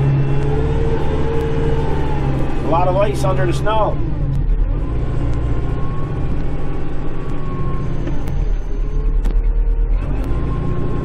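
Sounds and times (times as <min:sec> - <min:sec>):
faint whine shifting in pitch: 0:00.0 - 0:04.7
tractor diesel engine running: 0:00.0 - 0:11.0.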